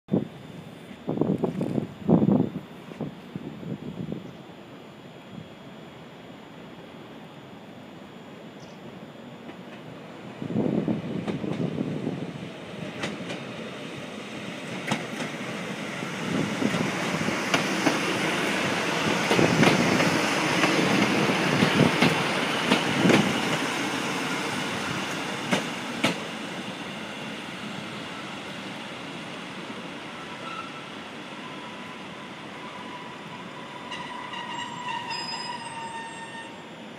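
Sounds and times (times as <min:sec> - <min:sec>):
passenger train rumbling past: 0:00.1 - 0:36.9.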